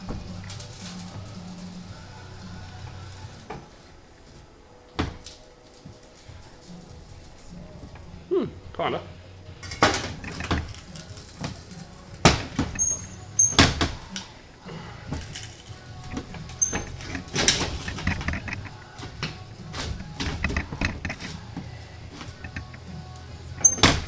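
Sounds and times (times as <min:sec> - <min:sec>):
sheet metal clanks and scrapes: 0:09.6 - 0:14.0.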